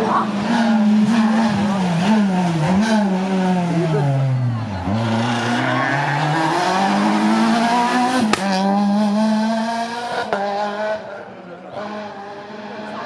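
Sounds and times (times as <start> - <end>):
rally car engine accelerating: 0.0 - 13.0
sharp crack: 8.2 - 8.7.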